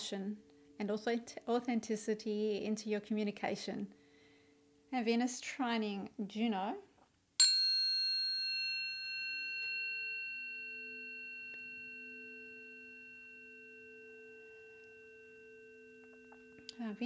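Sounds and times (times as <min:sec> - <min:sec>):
tuning forks ringing: 0:07.4 - 0:17.0.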